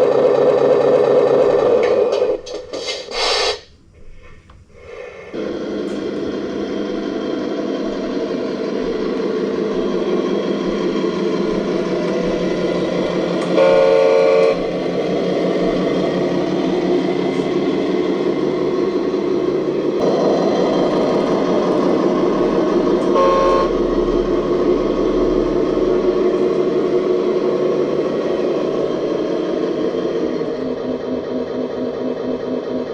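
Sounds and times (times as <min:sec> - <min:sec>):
electric motor and pump whirr: 0:00.0 - 0:32.9
horn-like beep: 0:13.4 - 0:14.7, 0:23.0 - 0:24.2.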